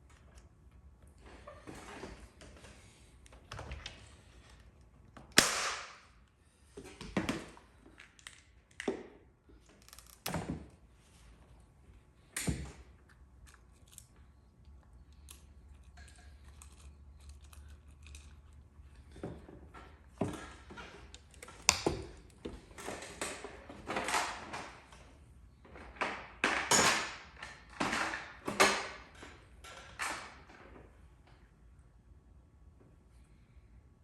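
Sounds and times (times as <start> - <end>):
sharp cracks and knocks on metal: 5.3 - 6.2, 26.1 - 30.4.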